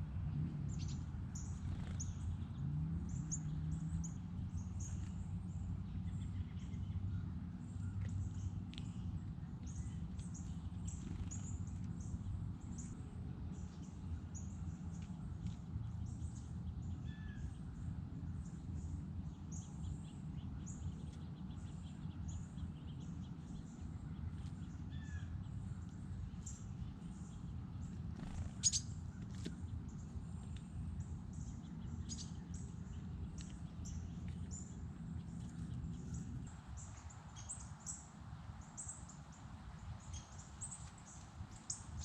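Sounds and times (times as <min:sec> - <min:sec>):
small birds chirping: 0:00.0 - 0:42.0
steady low rumble: 0:00.0 - 0:42.0.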